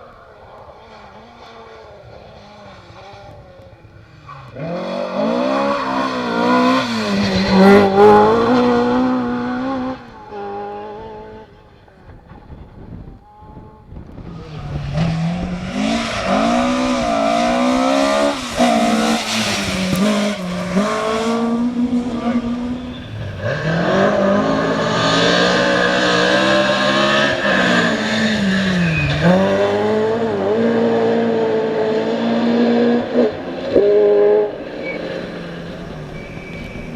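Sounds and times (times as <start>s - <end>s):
rally car engines revving: 0.0s - 36.9s.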